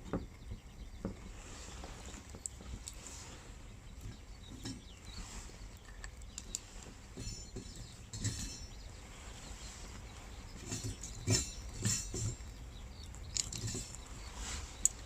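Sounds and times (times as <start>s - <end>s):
campfire crackling and popping: 2.1s - 3.1s.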